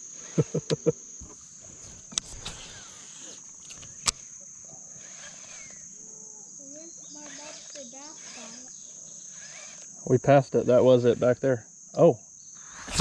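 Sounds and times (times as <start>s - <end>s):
high-pitched insect chorus buzzing: 0.0s - 13.0s.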